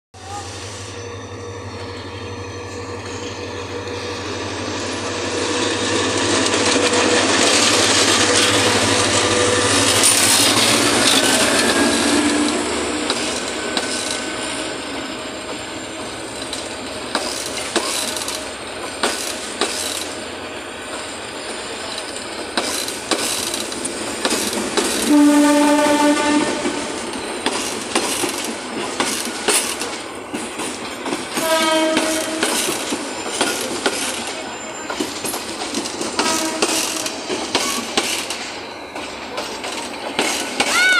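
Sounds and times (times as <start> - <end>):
diesel locomotive engine rumble: 0.2 - 40.9
wheels clicking over rail joints: 6.4 - 14.3, 15.4 - 20.2, 20.9 - 25.1, 26.6 - 40.9
train horn: 11.4 - 13.0, 25.0 - 27.1, 31.4 - 32.7, 36.2 - 37.2.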